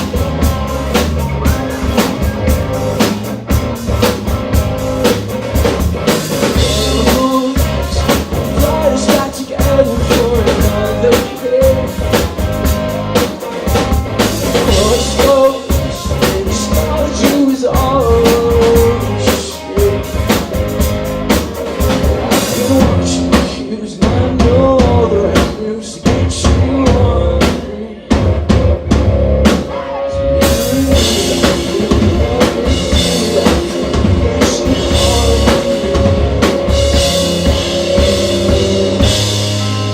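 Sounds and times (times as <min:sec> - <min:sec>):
drum kit beat: 0:00.0 - 0:39.9
rock band playing: 0:00.0 - 0:39.9.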